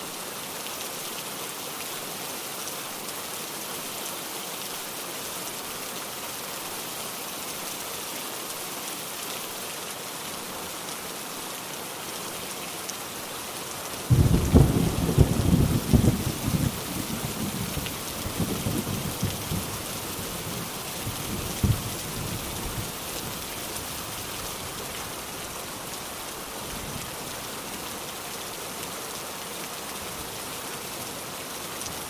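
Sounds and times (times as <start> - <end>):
steady rain falling: 0.0 - 32.0
thunder crack and rumble: 14.1 - 19.7, 21.4 - 21.9.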